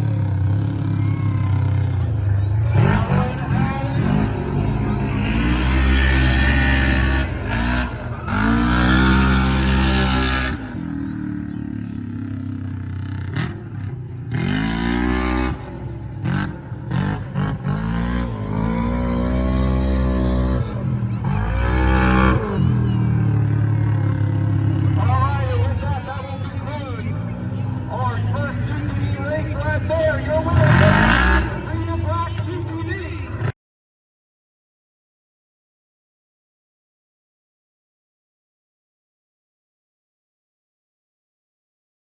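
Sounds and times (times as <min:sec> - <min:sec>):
truck engine revving: 0:00.0 - 0:33.5.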